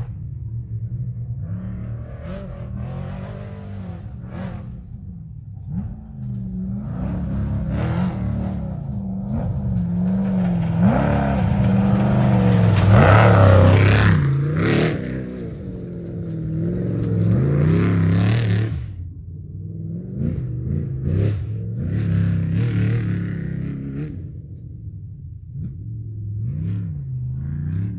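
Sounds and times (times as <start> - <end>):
tyres on gravel and dirt: 0.0 - 19.2
truck engine revving: 0.0 - 27.9.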